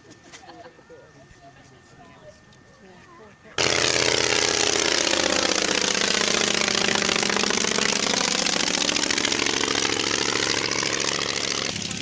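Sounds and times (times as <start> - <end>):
piston engine running: 3.6 - 12.0.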